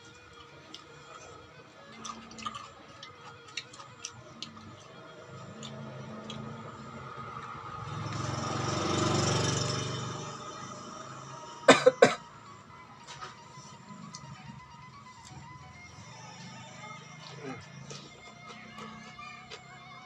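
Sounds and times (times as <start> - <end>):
crunchy chewing: 0.0 - 6.8, 17.2 - 20.0
loud short coughs: 11.7 - 12.3.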